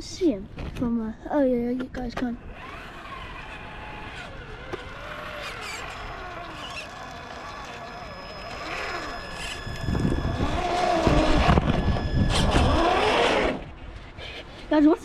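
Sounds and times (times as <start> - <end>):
electric motor whining: 2.4 - 14.0
wind buffeting microphone: 8.6 - 14.0.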